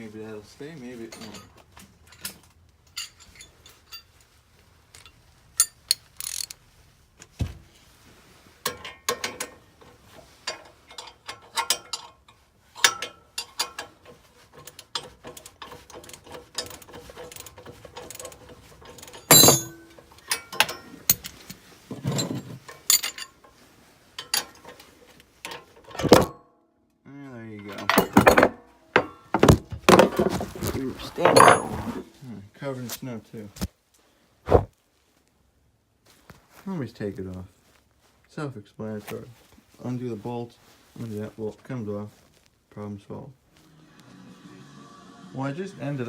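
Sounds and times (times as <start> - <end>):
metal clanks: 8.7 - 23.4, 27.6 - 32.1.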